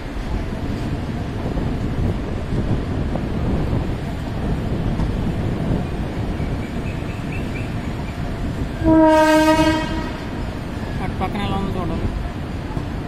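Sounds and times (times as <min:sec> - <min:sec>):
train rumbling: 0:00.0 - 0:13.0
train horn blast: 0:08.8 - 0:10.6.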